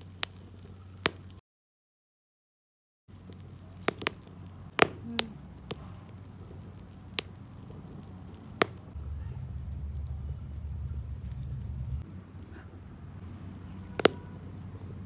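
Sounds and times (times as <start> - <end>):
low steady rumble: 3.1 - 15.0
sharp clicks and knocks: 3.3 - 5.9.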